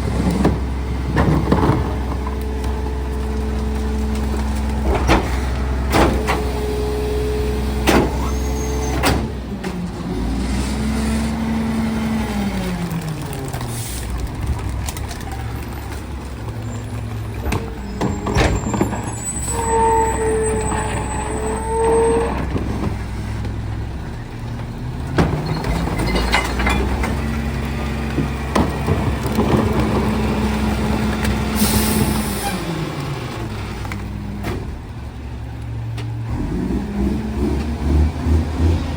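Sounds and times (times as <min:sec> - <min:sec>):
truck diesel engine running: 0:00.0 - 0:38.9
metal clanks: 0:25.2 - 0:27.4.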